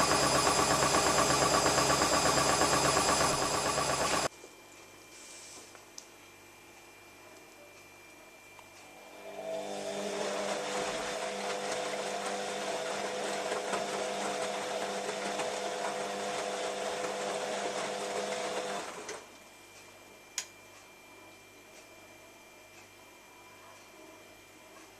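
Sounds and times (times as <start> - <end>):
washing machine drum turning: 0.0 - 4.3.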